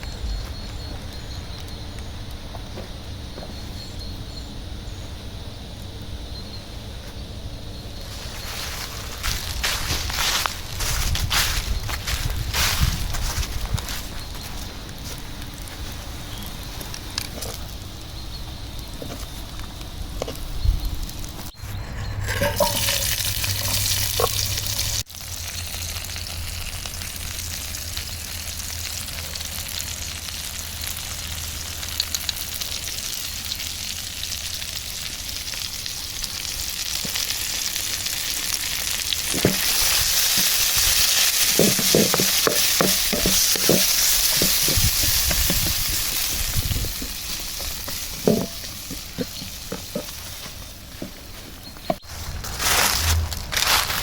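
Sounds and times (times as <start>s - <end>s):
utensil knocking and scraping: 21.6s - 23.9s, 39.3s - 51.2s
food sizzling in a pan: 22.3s - 51.0s.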